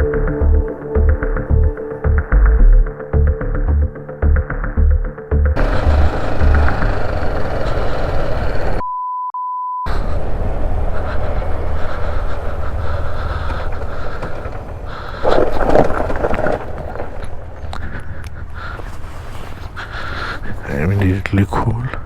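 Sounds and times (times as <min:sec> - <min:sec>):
motorcycle road noise: 0:05.6 - 0:08.8, 0:09.9 - 0:20.8
single steady beep: 0:08.8 - 0:09.9.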